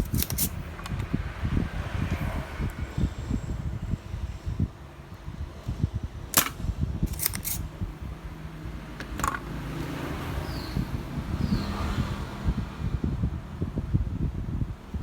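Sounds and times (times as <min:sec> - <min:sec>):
sharp clicks: 0:06.3 - 0:07.6.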